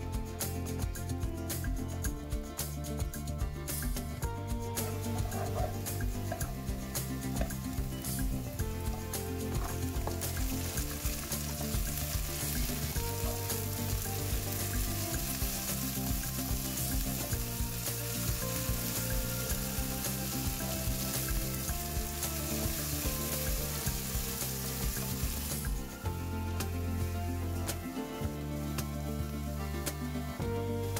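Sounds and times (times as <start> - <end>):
food sizzling in a wok: 3.6 - 30.9
wooden spatula scraping: 4.8 - 6.4.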